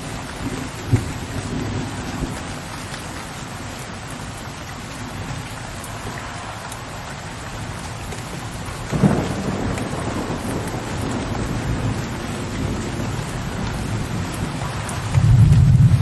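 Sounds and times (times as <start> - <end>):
rain hiss: 0.0 - 16.0
thunder clap: 0.2 - 2.5, 6.0 - 16.0
deep low thunder rumble: 8.8 - 16.0.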